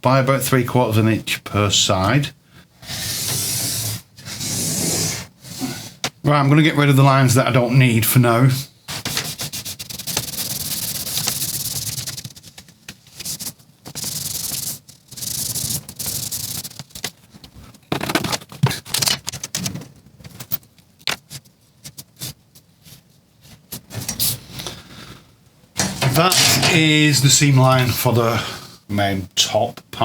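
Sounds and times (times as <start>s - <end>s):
rubbing on plastic sheet: 8.9s - 18.9s, 21.2s - 24.4s.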